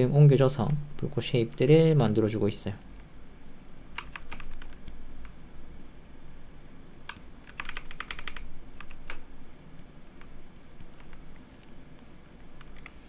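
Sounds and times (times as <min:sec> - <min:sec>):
low steady hum: 0:00.0 - 0:13.0
keyboard and mouse clicks: 0:03.9 - 0:05.4, 0:07.0 - 0:13.0.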